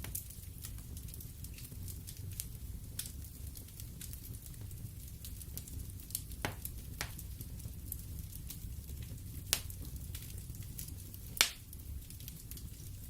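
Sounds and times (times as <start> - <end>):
burning logs popping: 0.0 - 13.0
wood fire crackling: 0.0 - 13.0.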